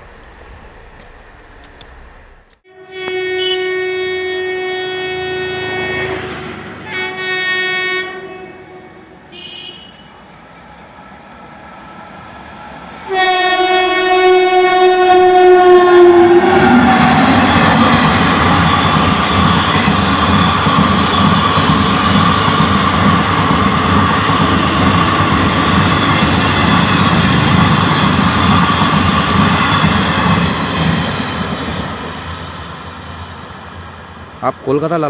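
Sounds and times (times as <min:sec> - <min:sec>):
train wheels rushing on rail: 0:00.0 - 0:35.0
train horn blasts: 0:02.6 - 0:10.4, 0:13.0 - 0:23.3.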